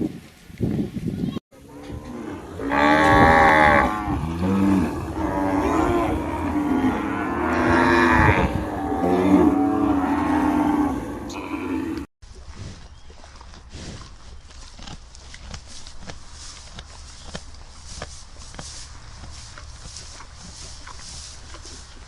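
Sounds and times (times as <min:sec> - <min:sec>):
cattle mooing: 0:01.6 - 0:12.1.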